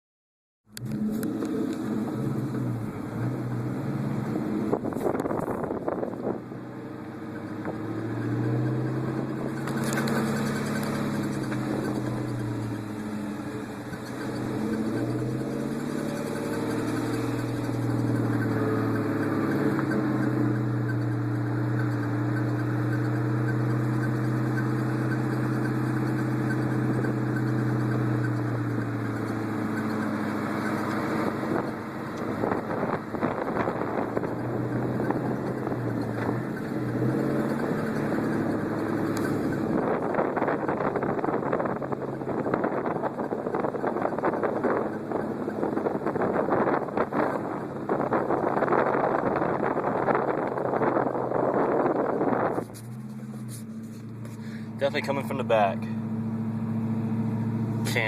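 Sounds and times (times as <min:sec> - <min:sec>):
car engine running: 0:00.7 - 0:58.0
squeak from rear of car: 0:07.2 - 0:41.4.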